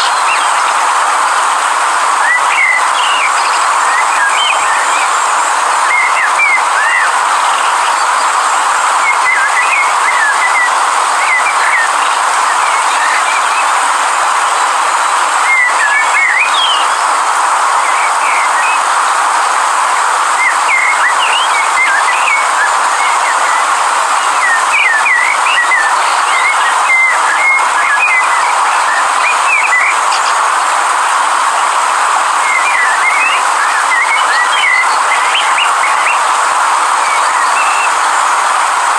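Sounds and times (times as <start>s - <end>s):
river water rushing: 0.0s - 38.9s
small birds chirping: 37.1s - 38.2s.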